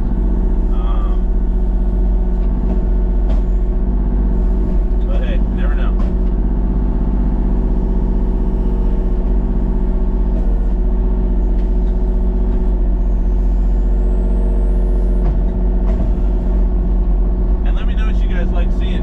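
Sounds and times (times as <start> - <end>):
engine running steadily: 0.0 - 19.0
low hum: 0.0 - 19.0.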